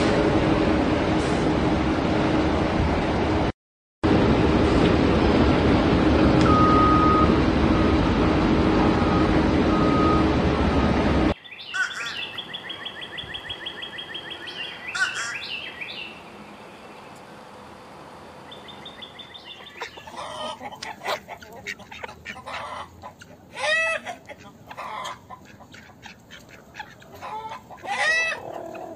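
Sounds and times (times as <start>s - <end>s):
loud rushing noise: 0.0s - 6.4s
bird calls: 11.4s - 17.4s, 18.4s - 28.9s.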